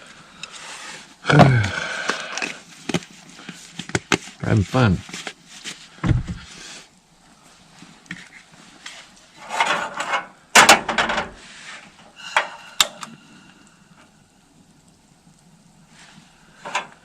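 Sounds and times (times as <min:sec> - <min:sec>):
rustling: 0:00.6 - 0:10.2.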